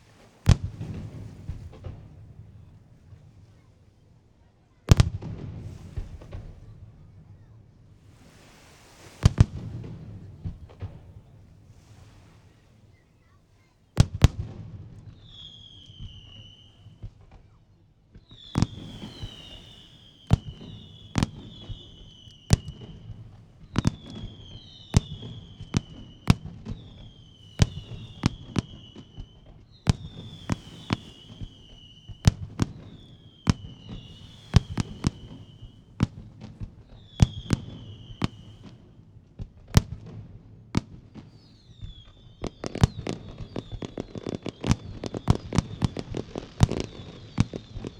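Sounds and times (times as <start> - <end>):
firework whistles gliding down: 15.0 - 17.0, 18.3 - 39.1, 41.2 - 47.9.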